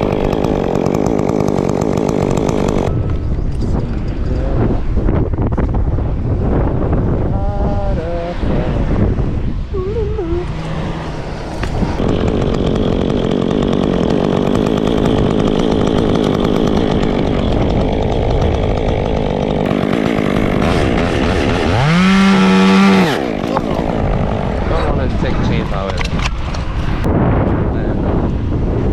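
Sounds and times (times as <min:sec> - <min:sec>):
chainsaw running and revving: 0:00.0 - 0:02.9, 0:10.4 - 0:25.9.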